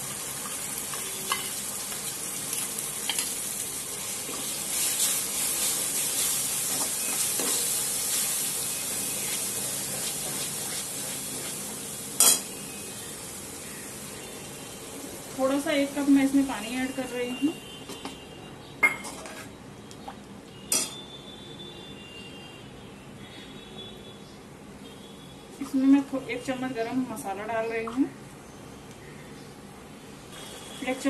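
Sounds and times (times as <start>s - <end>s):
sizzling in hot oil: 0.0s - 17.6s, 30.2s - 31.0s
spoon stirring and scraping pan: 4.2s - 12.5s, 18.9s - 19.6s
sharp metallic clank: 12.2s - 12.5s
spoon clinking on pan: 12.2s - 12.5s, 20.7s - 21.0s.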